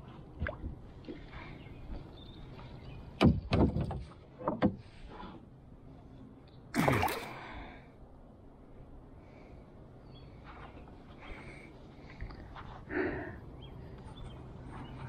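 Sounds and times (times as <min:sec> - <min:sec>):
knocks and bumps on kayak: 0:03.2 - 0:04.8.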